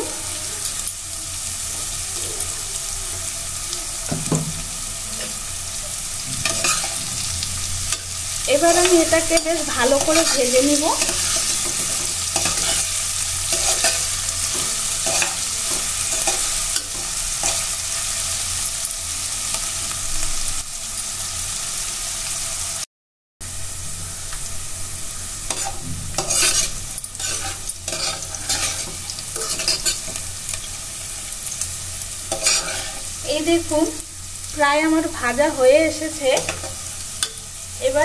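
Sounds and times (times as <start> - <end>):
vegetables sizzling in hot oil: 0.0 - 38.0
metal spoon scraping a pot: 6.4 - 17.6, 25.5 - 30.2, 32.3 - 33.1.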